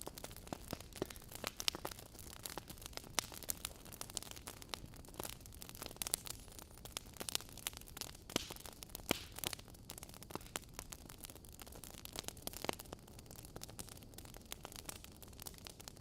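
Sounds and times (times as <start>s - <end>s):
logs crackling and popping: 0.0s - 16.0s.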